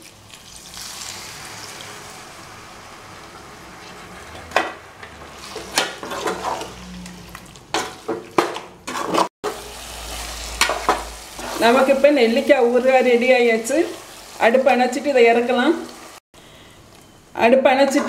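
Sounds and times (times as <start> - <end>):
vinegar sizzling in hot oil: 0.0 - 4.3, 9.4 - 16.2.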